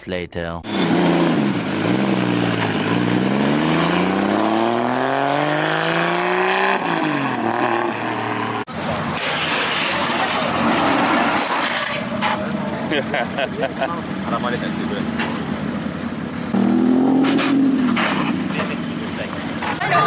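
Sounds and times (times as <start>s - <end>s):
car engine accelerating: 0.6s - 20.0s
road noise: 0.6s - 20.0s.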